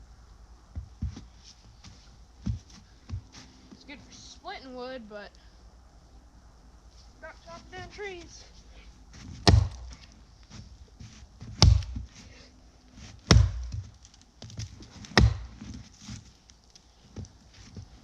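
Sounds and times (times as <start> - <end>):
axe chopping tree trunk: 9.4 - 10.0, 11.4 - 12.1, 13.2 - 15.8.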